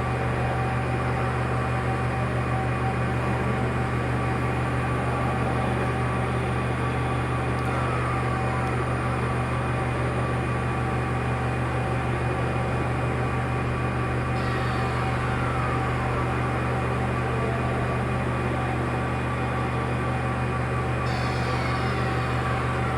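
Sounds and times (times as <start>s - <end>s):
machine humming: 14.0s - 22.9s
faint falling whine: 14.1s - 22.9s.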